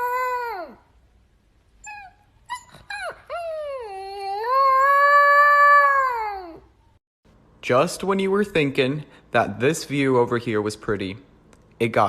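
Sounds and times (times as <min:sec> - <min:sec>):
dog howling: 0:00.0 - 0:00.9, 0:01.8 - 0:06.8
dog yelping: 0:00.0 - 0:00.9, 0:01.8 - 0:06.8.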